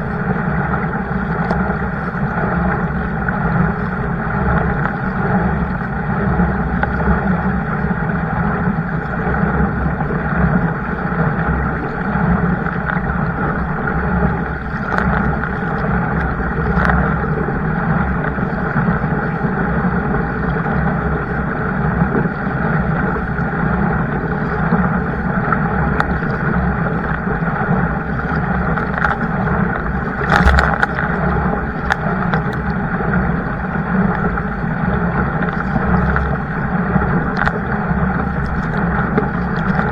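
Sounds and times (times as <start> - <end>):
kayak rushing through water: 0.0 - 39.9
wind rumble on microphone: 0.0 - 39.9
sharp knocks: 30.3 - 31.0.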